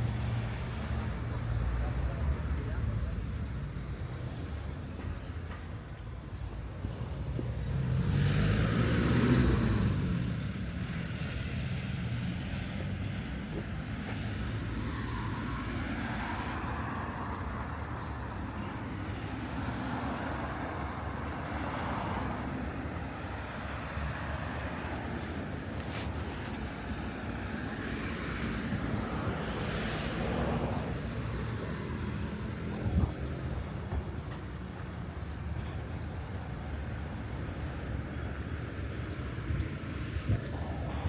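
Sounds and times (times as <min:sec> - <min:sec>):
street traffic noise: 0:00.0 - 0:41.0
motor vehicle passing by: 0:07.3 - 0:17.4, 0:21.6 - 0:33.7.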